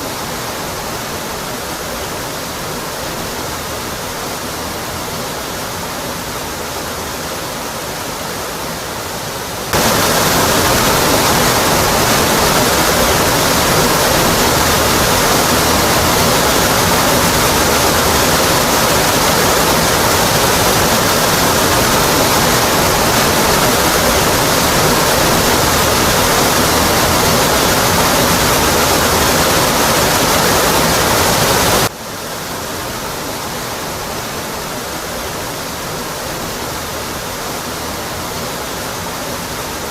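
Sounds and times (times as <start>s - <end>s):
waterfall onto rock: 9.7s - 31.9s.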